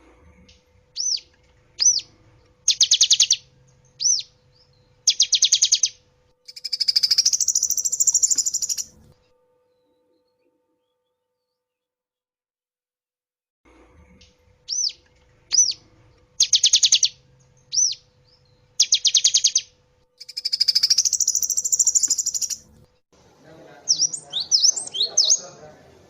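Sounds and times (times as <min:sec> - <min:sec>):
bird song with trills: 0:00.4 - 0:11.9, 0:14.2 - 0:22.7, 0:23.9 - 0:25.6
bird chirps: 0:00.5 - 0:09.0, 0:14.2 - 0:22.7, 0:23.8 - 0:25.6.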